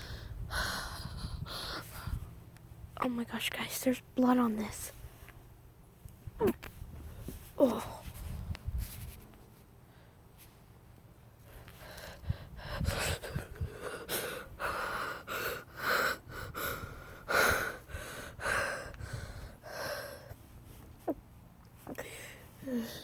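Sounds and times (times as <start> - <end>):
person breathing heavily and gasping: 0.0 - 2.3, 11.5 - 20.4, 22.0 - 23.0.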